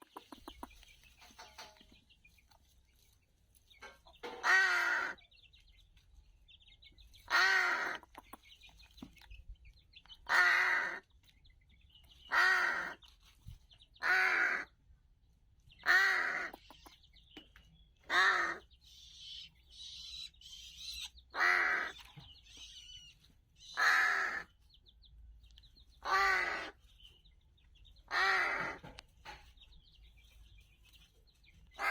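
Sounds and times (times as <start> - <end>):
bird calling: 18.0 - 24.5, 26.0 - 26.8, 28.1 - 28.9.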